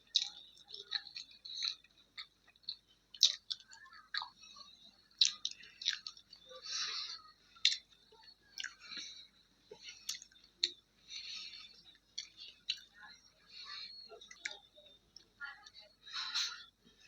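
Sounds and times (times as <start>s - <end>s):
chewing food: 0.0s - 17.0s
wet mouth clicks and smacks: 5.2s - 6.3s, 7.6s - 7.9s, 10.1s - 10.8s.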